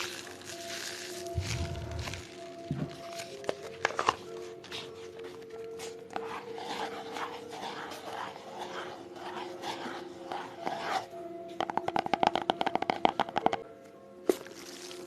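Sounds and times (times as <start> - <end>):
fingers scratching an object: 5.8 - 13.6
fast tapping: 11.6 - 13.6.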